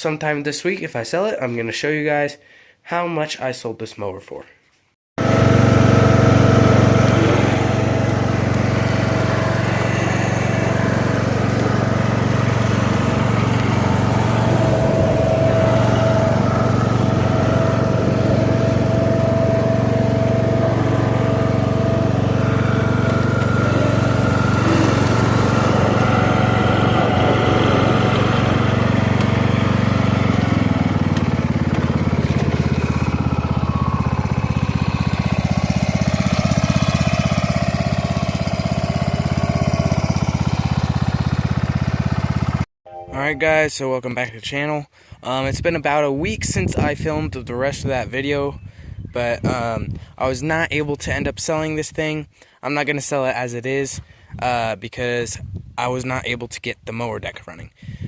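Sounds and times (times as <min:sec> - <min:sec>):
lawn tractor engine running: 0:05.2 - 0:42.6.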